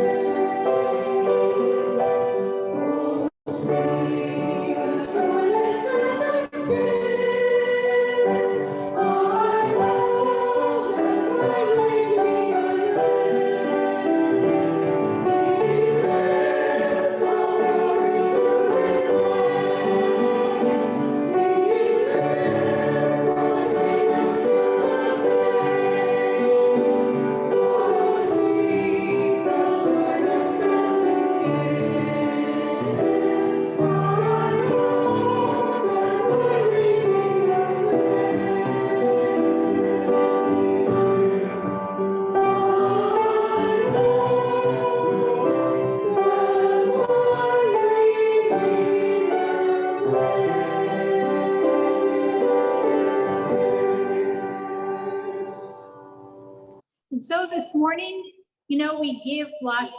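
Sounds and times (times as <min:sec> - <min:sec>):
choir singing a slow sacred song: 0:00.0 - 0:56.8.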